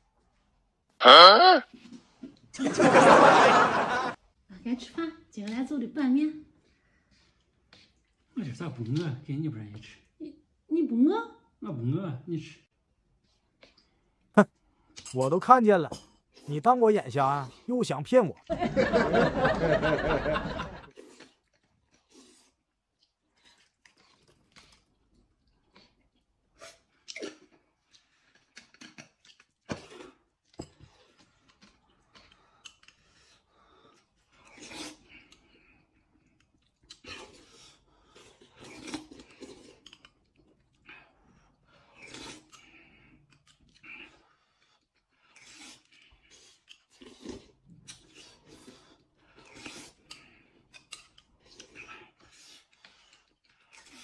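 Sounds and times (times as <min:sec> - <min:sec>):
noodles slurped and chewed: 0:06.4 - 0:09.1, 0:13.0 - 0:15.1, 0:20.8 - 0:54.0.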